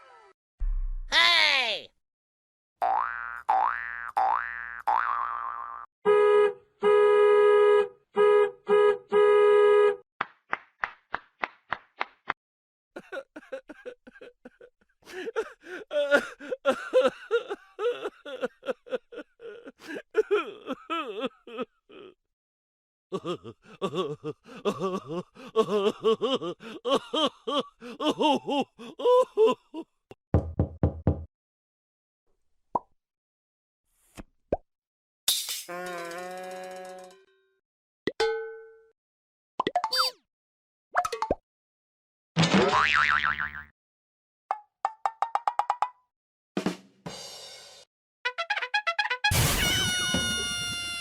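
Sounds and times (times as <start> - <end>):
cartoon honks: 48.3 - 51.0.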